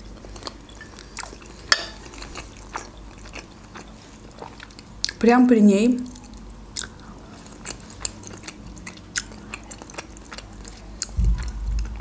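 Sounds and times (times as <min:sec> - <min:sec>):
wet chewing smacks and clicks: 0:06.2 - 0:12.0.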